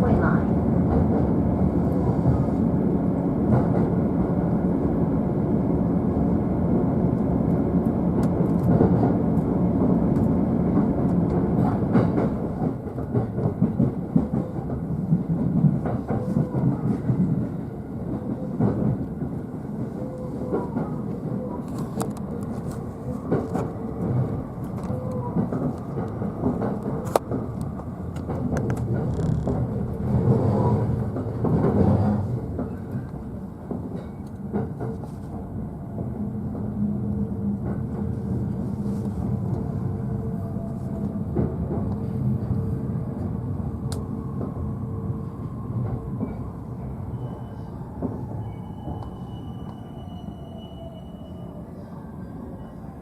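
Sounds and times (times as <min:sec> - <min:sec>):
train wheels rumbling on rail: 0:00.0 - 0:52.8
rail joint clicks: 0:07.1 - 0:19.4, 0:20.1 - 0:44.7, 0:45.4 - 0:50.9.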